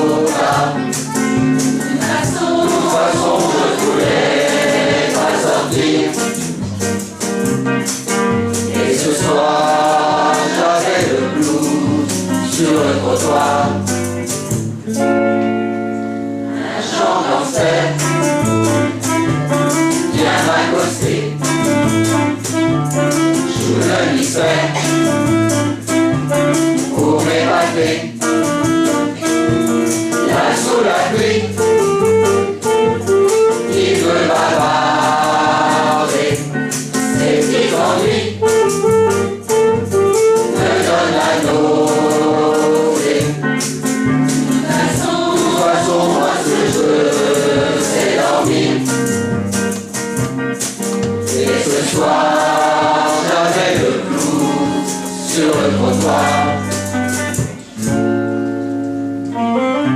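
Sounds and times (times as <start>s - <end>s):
choir singing: 0.0s - 6.6s, 8.6s - 14.0s, 16.5s - 19.0s, 19.9s - 21.7s, 23.4s - 25.3s, 26.8s - 28.2s, 29.0s - 31.8s, 33.6s - 38.5s, 40.5s - 43.4s, 44.4s - 49.1s, 51.3s - 56.8s
shaker-like percussion: 0.0s - 59.2s.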